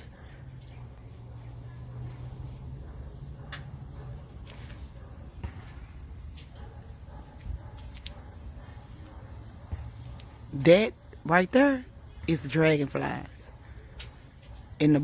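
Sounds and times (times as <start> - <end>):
insect chorus: 0.0 - 15.0.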